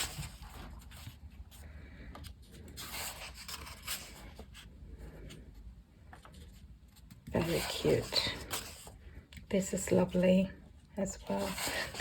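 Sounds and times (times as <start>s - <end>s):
paper pages rustling: 0.0s - 5.4s.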